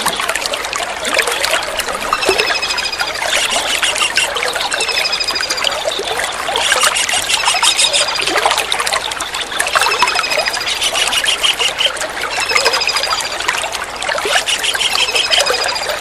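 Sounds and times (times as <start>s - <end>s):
water trickling: 0.0s - 16.0s
kingfisher trilled calls: 2.2s - 8.4s, 9.3s - 13.5s, 14.2s - 16.0s.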